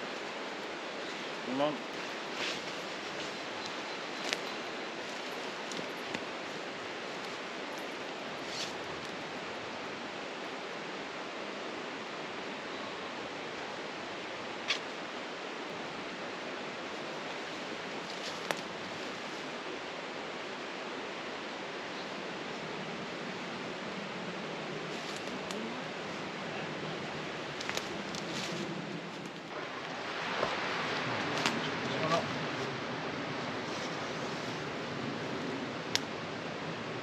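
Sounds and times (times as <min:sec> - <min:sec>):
flowing water rushing: 0:29.5 - 0:33.6.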